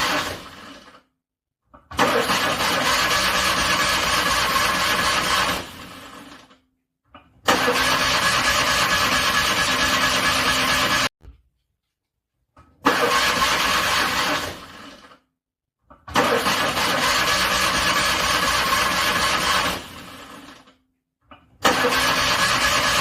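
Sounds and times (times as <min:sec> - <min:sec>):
car engine cranking: 0:00.0 - 0:01.0, 0:02.0 - 0:06.5, 0:07.5 - 0:11.1, 0:12.8 - 0:15.0, 0:16.1 - 0:20.5, 0:21.6 - 0:23.0.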